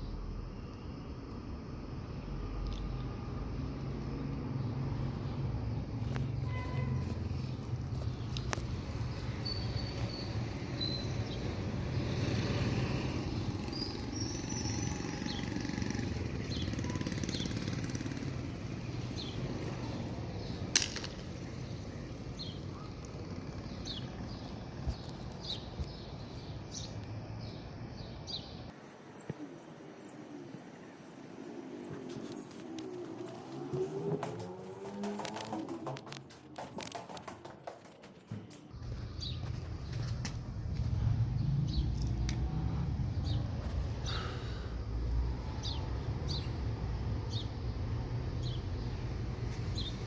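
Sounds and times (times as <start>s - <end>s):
bird chirps: 9.1s - 11.3s.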